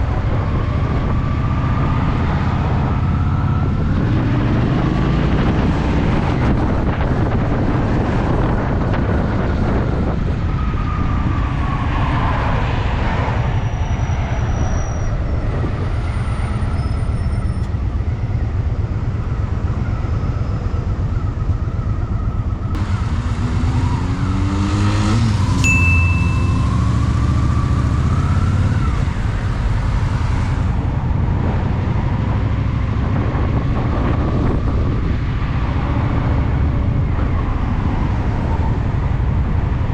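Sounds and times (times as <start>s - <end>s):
city traffic: 0.0s - 39.9s
motorcycle engine revving: 22.8s - 34.2s.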